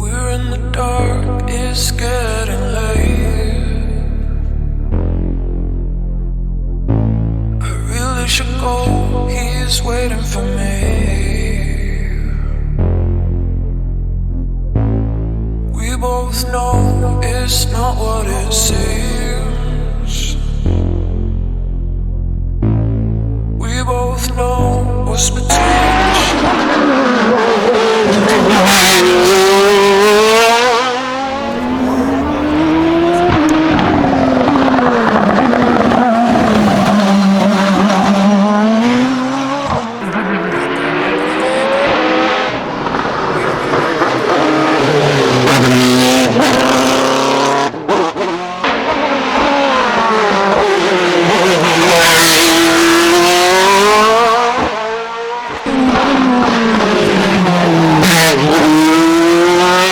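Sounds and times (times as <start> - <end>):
race car engine revving: 23.6 - 59.9.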